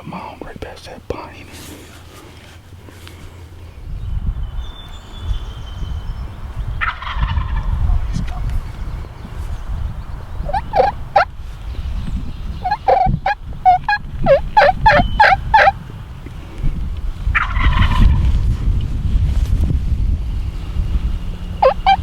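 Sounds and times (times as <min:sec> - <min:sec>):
low wind rumble: 0:00.0 - 0:22.0
wild turkeys calling: 0:06.8 - 0:18.6, 0:21.3 - 0:22.0.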